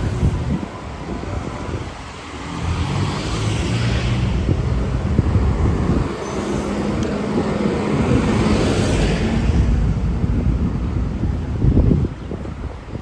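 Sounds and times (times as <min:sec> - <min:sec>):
vehicle passing: 0:01.7 - 0:10.8.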